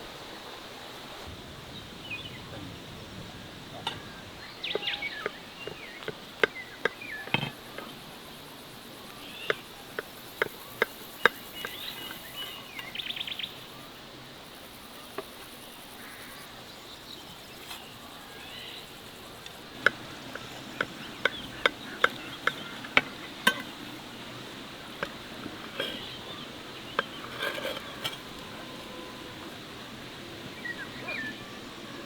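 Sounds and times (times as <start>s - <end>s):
birds chirping: 1.8s - 13.9s, 16.0s - 32.0s
bird trill: 3.9s - 8.0s.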